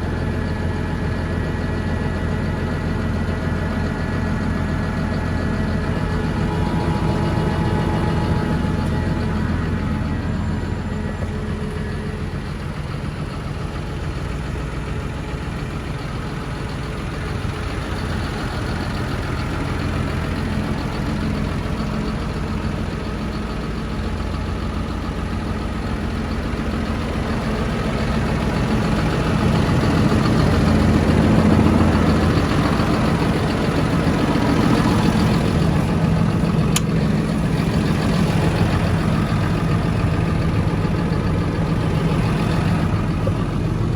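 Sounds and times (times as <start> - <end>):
tractor diesel engine idling: 0.0 - 43.9.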